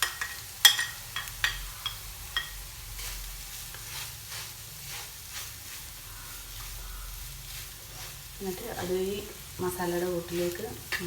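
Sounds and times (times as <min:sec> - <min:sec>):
spoon tapping on pan: 0:00.0 - 0:02.6
light sizzle: 0:00.0 - 0:11.0
spoon scraping frying pan: 0:00.0 - 0:11.0.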